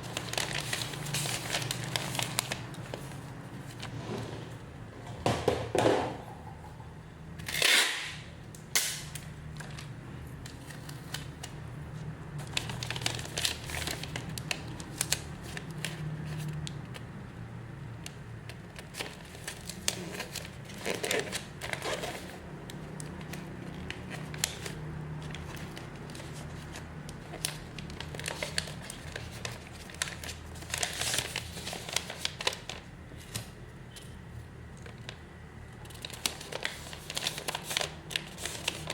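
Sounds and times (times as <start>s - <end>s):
plastic packaging crinkling: 0.0s - 4.0s, 8.6s - 11.7s, 12.4s - 17.0s, 18.0s - 34.0s, 35.8s - 38.9s.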